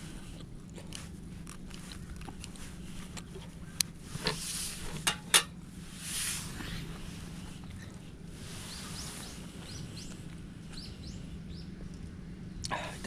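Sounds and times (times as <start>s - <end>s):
scraping and rustling: 0.2s - 9.4s.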